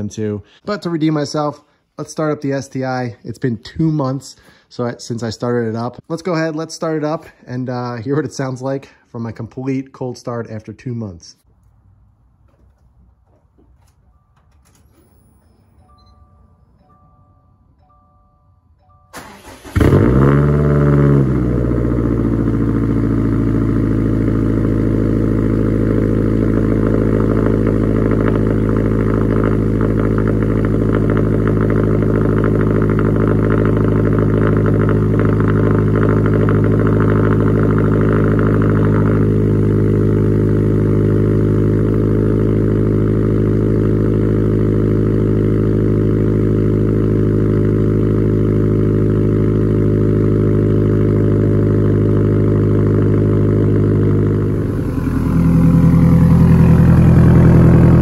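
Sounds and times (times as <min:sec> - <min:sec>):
car engine idling: 0:19.2 - 0:58.0
rasping engine sound: 0:19.2 - 0:58.0.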